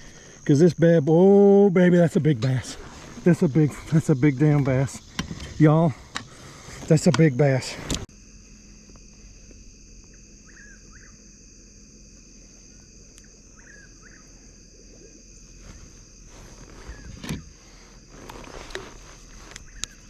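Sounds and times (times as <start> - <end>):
insects chorus: 0.0 - 20.0
short chirping calls: 10.1 - 11.2, 12.7 - 14.6.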